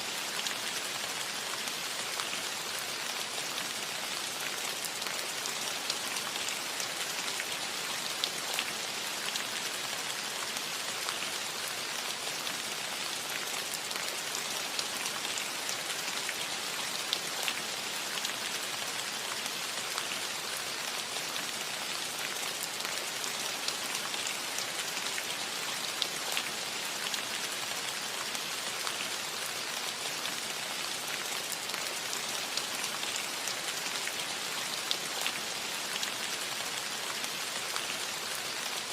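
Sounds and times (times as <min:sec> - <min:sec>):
rain on a metal roof: 0:00.0 - 0:38.9.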